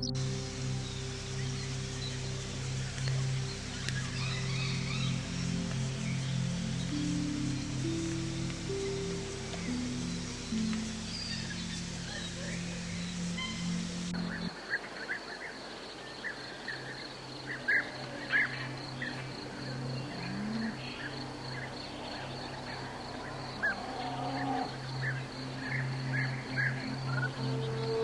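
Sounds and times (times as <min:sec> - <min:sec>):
bird chirps: 0:00.0 - 0:14.5
low hum: 0:00.0 - 0:14.5, 0:16.8 - 0:28.0.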